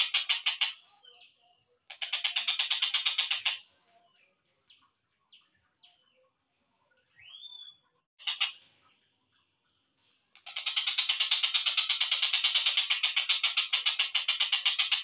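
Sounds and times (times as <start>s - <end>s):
bird chirps: 0.0s - 6.4s, 7.0s - 8.6s.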